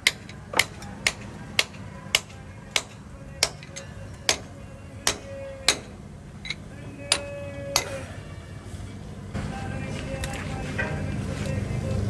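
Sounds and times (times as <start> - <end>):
hammer blows on metal: 0.0 - 8.2.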